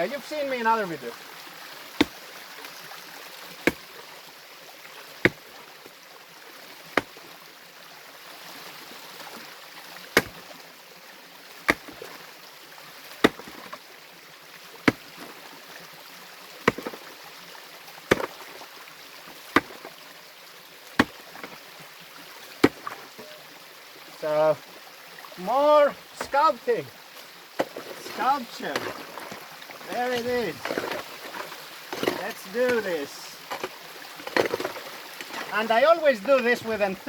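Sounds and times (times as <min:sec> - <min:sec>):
stream rushing: 0:00.0 - 0:37.0
metal tool striking rock: 0:03.6 - 0:03.8, 0:10.2 - 0:10.4, 0:11.7 - 0:12.0, 0:13.2 - 0:13.8, 0:14.9 - 0:15.3, 0:16.7 - 0:17.0, 0:18.1 - 0:18.3, 0:19.6 - 0:19.8, 0:21.0 - 0:21.6, 0:22.6 - 0:23.4, 0:27.6 - 0:35.6.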